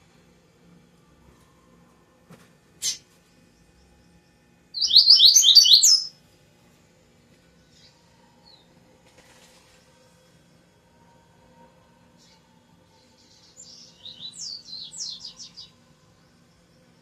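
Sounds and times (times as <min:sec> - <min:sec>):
bird chip call: 0:04.8 - 0:06.1
bird singing high phrase: 0:04.8 - 0:06.1.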